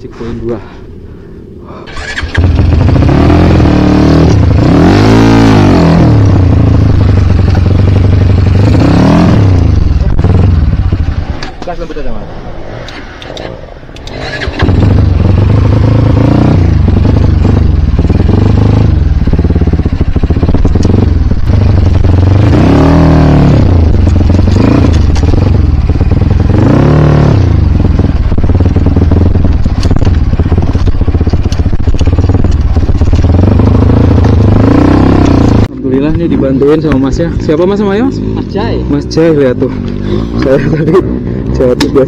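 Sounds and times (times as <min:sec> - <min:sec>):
motorbike engine revving hard: 0:01.9 - 0:11.2, 0:14.1 - 0:35.7.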